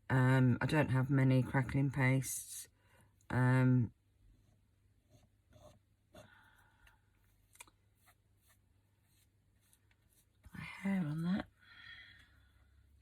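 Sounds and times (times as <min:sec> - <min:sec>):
faint paintbrush taps and scratches: 0:04.3 - 0:10.8.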